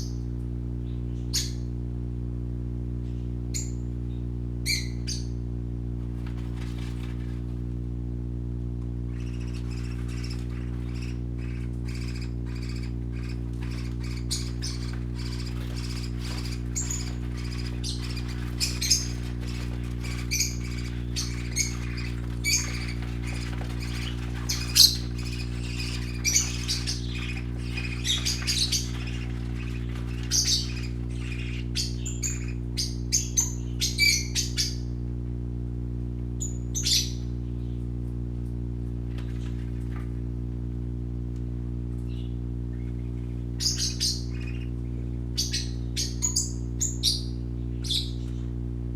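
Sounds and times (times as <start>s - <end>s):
low hum: 0.0s - 48.9s
parakeets chirping and squawking: 4.7s - 5.3s, 6.0s - 7.7s, 9.1s - 34.9s, 36.4s - 37.8s, 39.2s - 40.2s, 42.0s - 48.4s.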